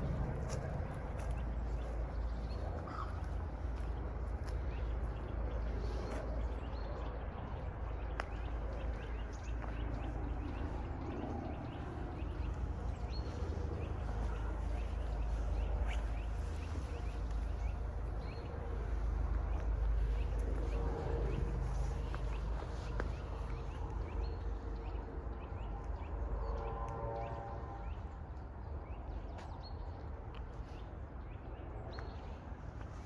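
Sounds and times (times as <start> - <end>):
small birds chirping: 0.0 - 26.2
steady low rumble: 0.0 - 33.0.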